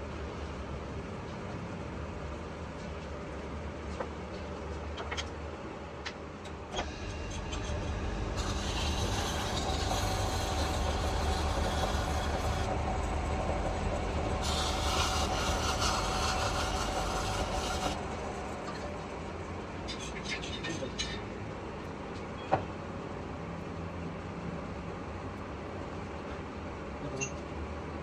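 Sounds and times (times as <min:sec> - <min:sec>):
metal lathe humming: 0:06.8 - 0:19.3.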